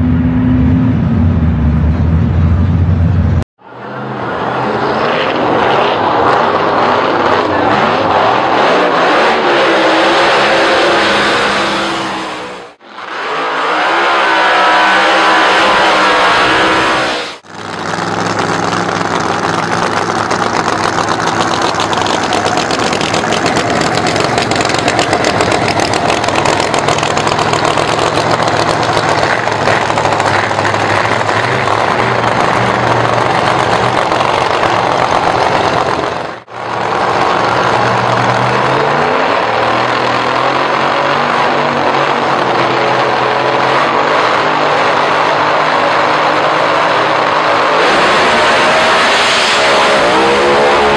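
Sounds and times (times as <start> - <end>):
car engine revving: 0.0 - 50.9
loud rough engine running: 14.9 - 50.9.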